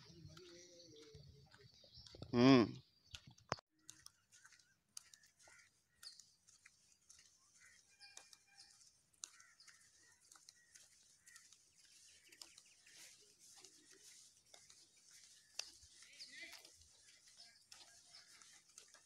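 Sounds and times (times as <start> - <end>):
faint bird calls: 3.8 - 19.0.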